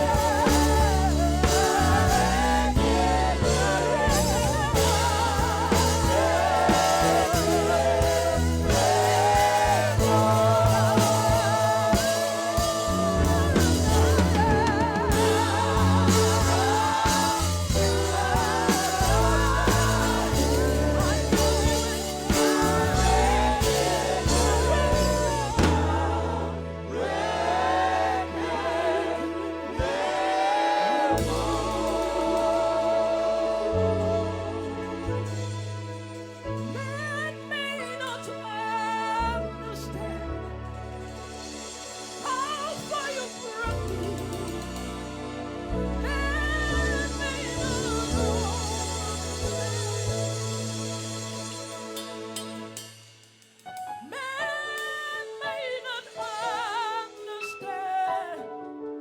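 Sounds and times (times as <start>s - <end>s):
low bass line: 0.0s - 30.2s, 31.1s - 37.0s
gospel band playing: 0.0s - 59.0s.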